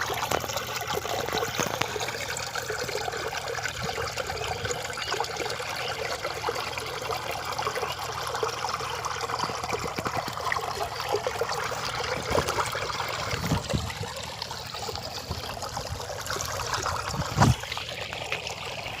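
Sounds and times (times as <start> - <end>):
stream water trickling: 0.0 - 19.0.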